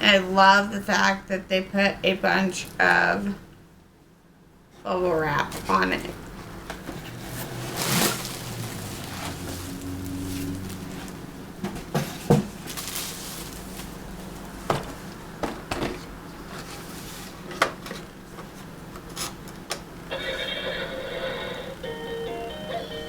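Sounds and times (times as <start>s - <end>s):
bubble wrap rustling: 7.0s - 11.2s, 12.4s - 15.1s
electronic toy synthesized tune: 20.2s - 23.0s.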